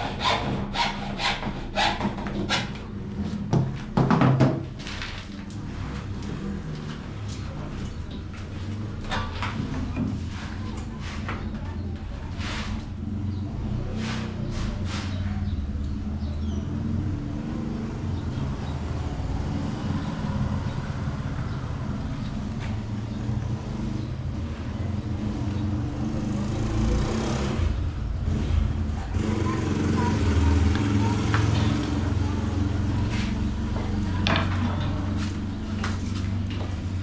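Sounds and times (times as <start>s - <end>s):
low motor rumble: 27.6s - 37.0s.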